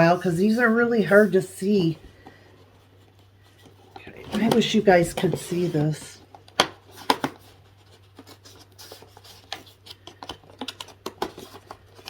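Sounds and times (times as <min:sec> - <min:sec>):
cardboard and paper rustling: 0:00.0 - 0:12.0.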